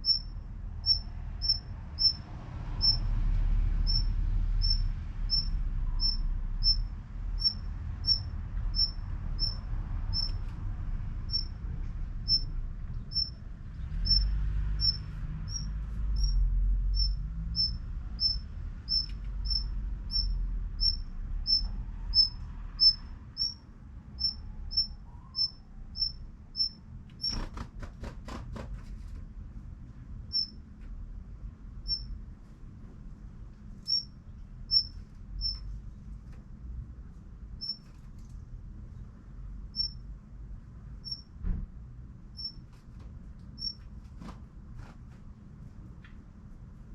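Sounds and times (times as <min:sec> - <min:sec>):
bird calling with high chips: 0:00.0 - 0:02.2, 0:17.0 - 0:23.6.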